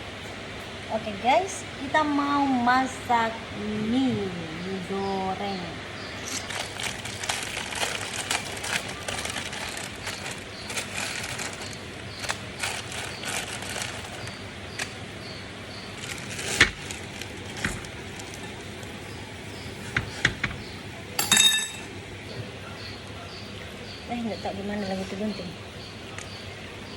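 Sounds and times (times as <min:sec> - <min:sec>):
food handling clicks and crinkles: 0:06.1 - 0:22.0, 0:26.0 - 0:26.9.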